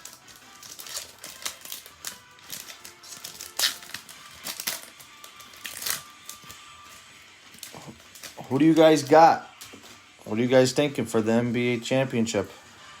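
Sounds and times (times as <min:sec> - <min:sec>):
trading cards flipping and rustling: 0:00.0 - 0:10.2
faint background music: 0:00.0 - 0:13.0.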